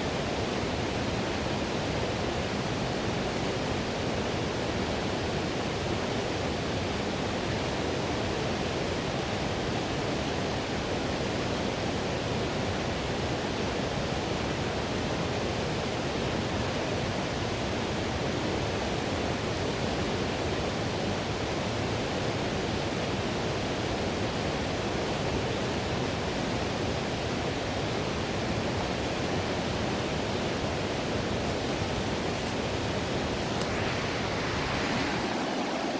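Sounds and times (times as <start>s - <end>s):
river rushing over rocks: 19.0s - 35.9s.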